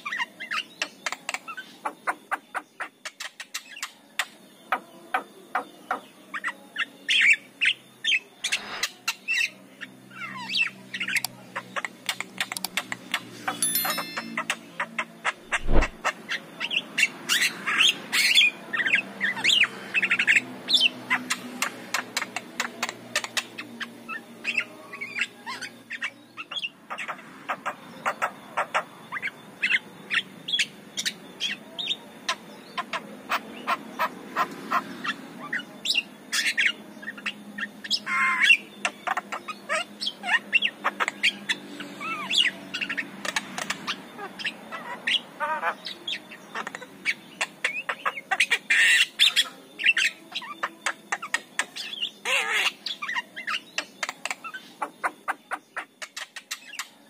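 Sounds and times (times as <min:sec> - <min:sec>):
bird chattering and whistling: 0:00.0 - 0:57.0.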